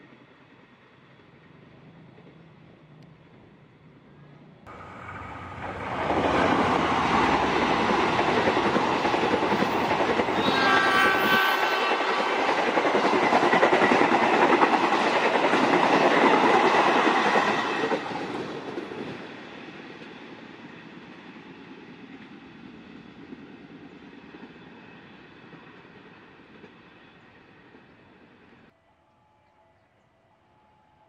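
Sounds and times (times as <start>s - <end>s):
train wheels clattering over rails: 4.7s - 19.3s
multi-tone locomotive horn: 10.3s - 12.4s.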